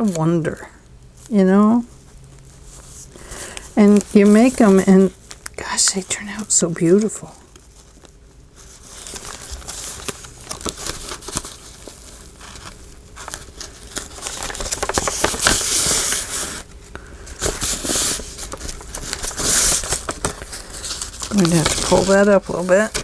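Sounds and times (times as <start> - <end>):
paper rustling and crinkling: 1.2 - 23.0.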